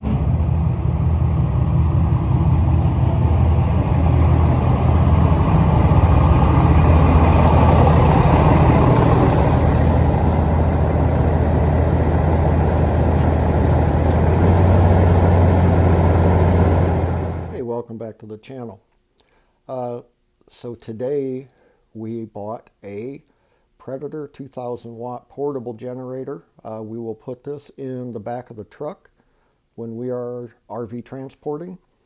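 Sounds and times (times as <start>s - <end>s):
engine running with low hum: 0.0s - 17.6s.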